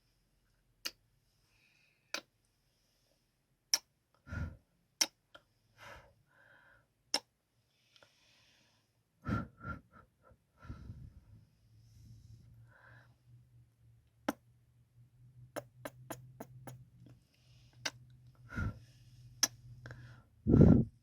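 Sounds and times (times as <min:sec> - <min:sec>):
breaths: 0:01.2 - 0:03.4, 0:04.2 - 0:04.6, 0:05.4 - 0:06.9, 0:07.6 - 0:13.3, 0:17.1 - 0:20.9
soft mouth sounds: 0:07.1 - 0:07.3, 0:14.2 - 0:14.4, 0:15.6 - 0:18.8
lip smacks: 0:15.6 - 0:17.2.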